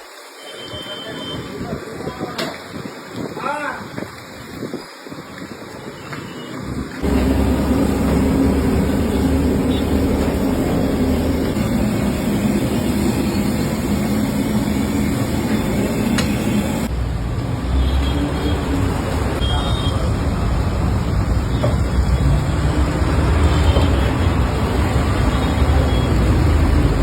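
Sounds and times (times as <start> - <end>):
street traffic: 0.4 - 27.0
low engine hum: 7.0 - 16.9.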